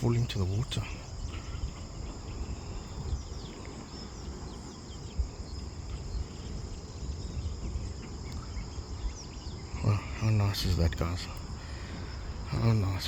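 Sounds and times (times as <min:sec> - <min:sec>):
microphone handling rumble: 0:00.0 - 0:09.5
bird chirps: 0:00.0 - 0:13.0
insects chorus: 0:00.0 - 0:13.0.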